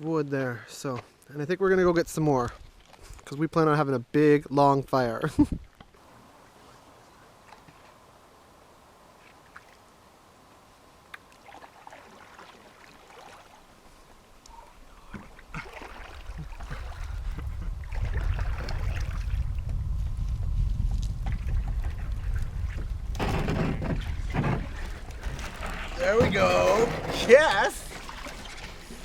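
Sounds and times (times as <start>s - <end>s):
paddle strokes splashing: 5.7s - 8.2s, 9.1s - 9.9s, 11.0s - 19.7s, 21.2s - 29.0s
wind rumbling on microphone: 15.0s - 29.0s.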